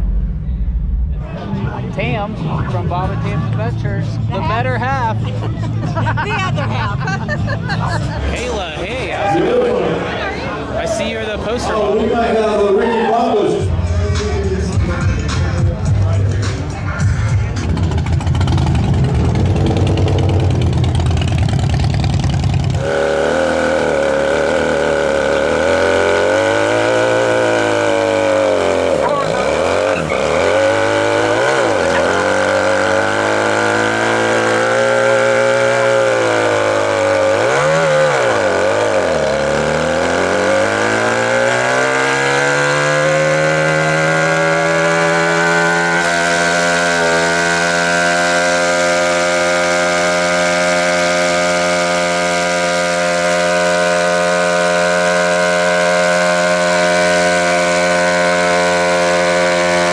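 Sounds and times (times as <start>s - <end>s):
engine revving: 13.5s - 59.9s.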